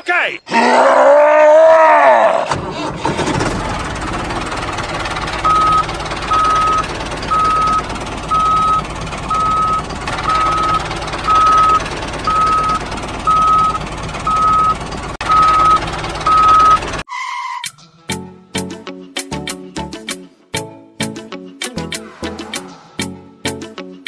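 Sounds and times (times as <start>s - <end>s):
reversing alarm beeping: 5.4s - 17.7s.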